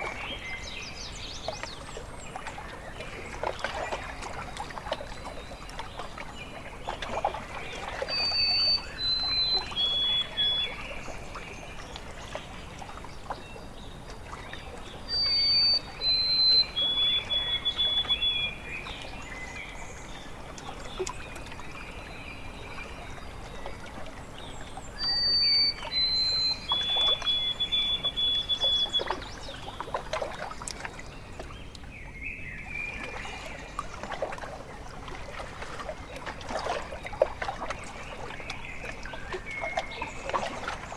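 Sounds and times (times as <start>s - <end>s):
small waves lapping: 0.0s - 40.9s
songbird whistling song: 8.0s - 11.5s, 15.0s - 19.8s, 24.5s - 30.0s.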